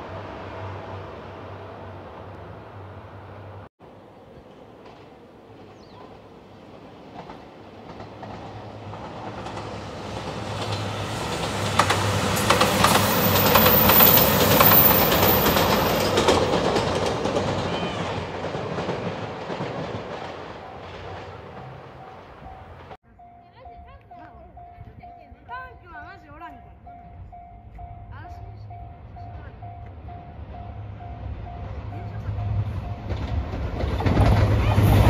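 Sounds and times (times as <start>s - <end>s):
diesel train passing: 0.0s - 35.0s
wheels clacking over rail joints: 2.2s - 23.0s, 29.8s - 35.0s.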